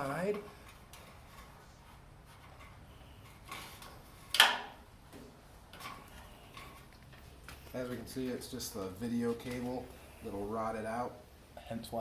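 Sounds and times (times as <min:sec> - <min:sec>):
handling wiring and parts: 0:00.0 - 0:10.8.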